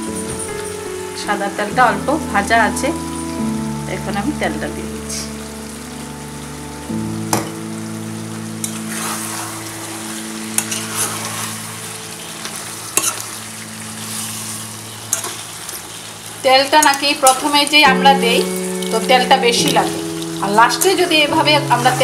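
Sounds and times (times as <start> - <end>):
food sizzling in oil: 0.0 - 22.0
metal ladle scraping a pot: 10.5 - 11.6, 12.9 - 13.4, 14.0 - 15.8.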